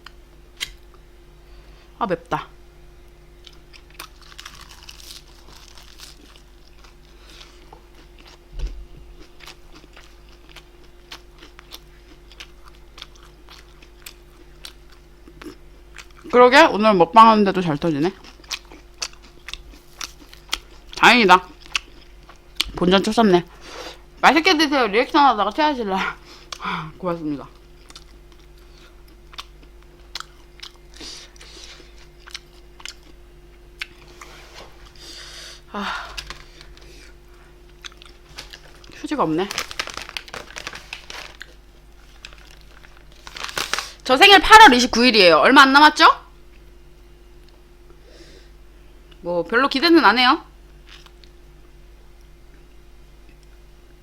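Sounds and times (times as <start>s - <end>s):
faint electrical hum: 0.0s - 54.0s
person chewing crunchy food: 3.4s - 16.3s, 18.2s - 22.8s, 27.6s - 44.0s, 50.8s - 51.4s.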